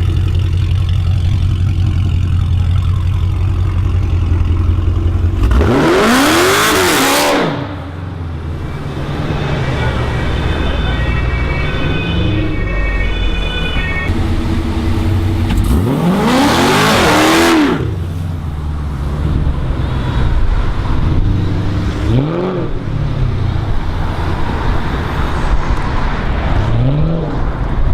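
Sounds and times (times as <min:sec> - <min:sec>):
car engine idling and revving: 0:00.0 - 0:27.9.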